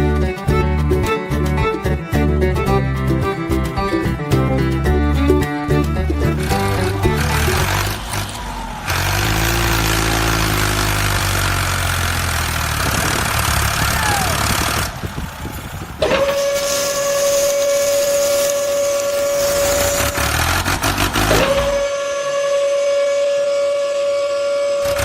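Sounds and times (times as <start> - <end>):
engine rumble: 0.0 - 22.0
long steady whistle tone: 16.2 - 20.4, 21.7 - 25.0
hiss: 16.4 - 20.3.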